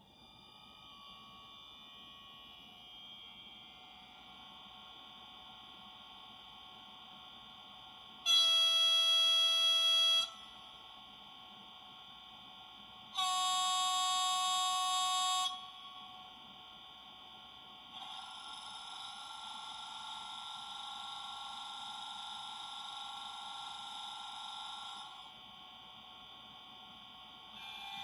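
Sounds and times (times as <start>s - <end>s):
faint steady whine: 0.0s - 28.0s
model train horn blasts: 8.3s - 10.4s, 13.1s - 15.8s.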